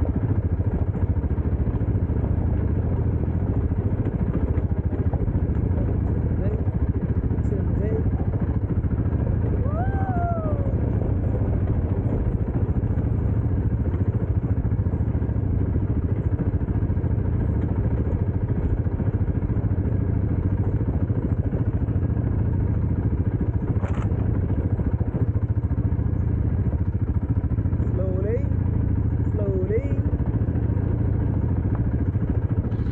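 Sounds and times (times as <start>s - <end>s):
dirt bike engine running: 0.0s - 32.9s.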